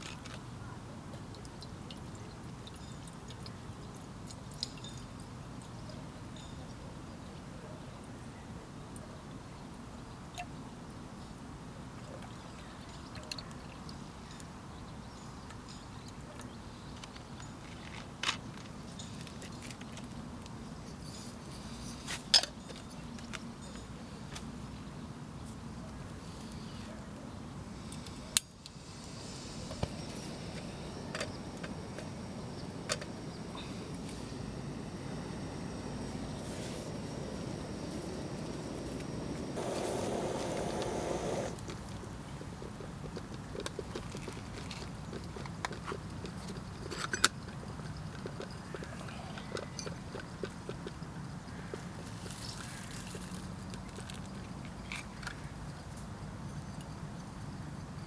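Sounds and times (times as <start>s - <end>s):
gas burner roaring: 27.8s - 42.1s.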